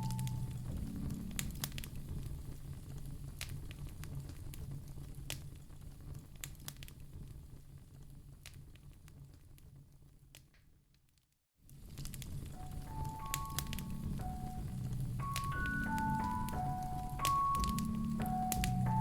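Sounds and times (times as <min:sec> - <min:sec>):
low steady hum: 0:00.0 - 0:08.5, 0:11.8 - 0:19.0
wood fire crackling: 0:00.0 - 0:10.8, 0:11.7 - 0:19.0.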